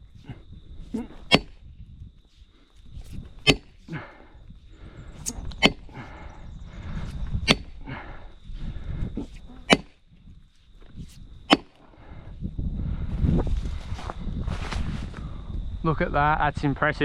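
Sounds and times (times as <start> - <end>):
wedge struck with hard blows: 1.0 - 1.6, 3.4 - 3.8, 5.2 - 6.0, 7.5 - 7.8, 9.7 - 10.0, 11.5 - 11.8.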